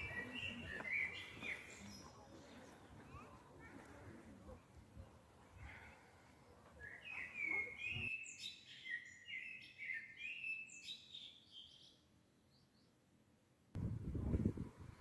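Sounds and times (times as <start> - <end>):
songbird singing: 0.0 - 3.3, 6.8 - 13.0
faint outdoor background noise: 0.0 - 15.0.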